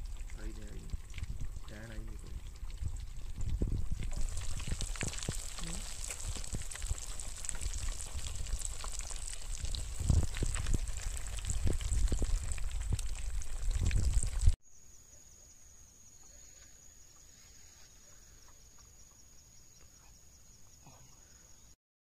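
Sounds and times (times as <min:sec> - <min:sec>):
fish sizzling in hot oil: 0:00.0 - 0:14.6.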